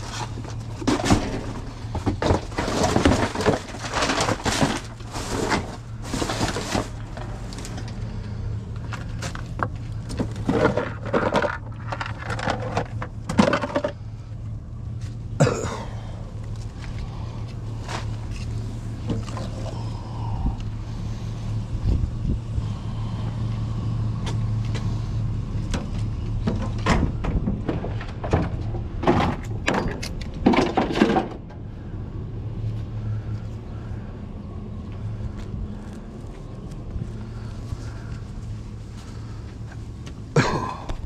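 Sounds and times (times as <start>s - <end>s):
knocks and clattering: 0.0s - 7.9s, 9.0s - 14.0s, 25.6s - 31.6s
vehicle engine running: 0.0s - 41.0s.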